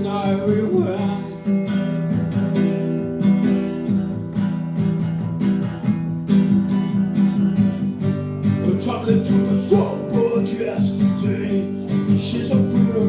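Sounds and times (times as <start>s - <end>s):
person singing: 0.0s - 1.5s, 8.6s - 13.0s
acoustic guitar strumming: 0.0s - 13.0s.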